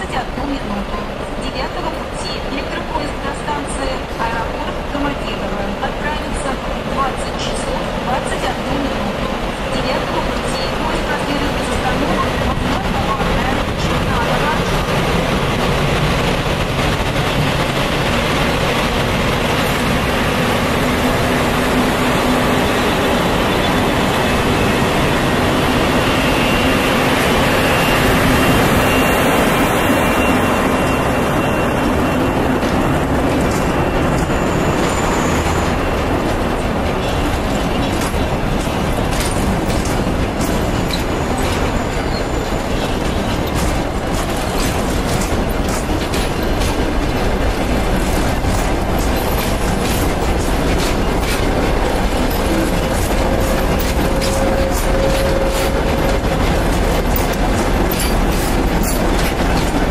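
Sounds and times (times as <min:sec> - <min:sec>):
electric locomotive passing: 0:00.0 - 0:59.9
train wheels clicking over rail joints: 0:06.2 - 0:59.9.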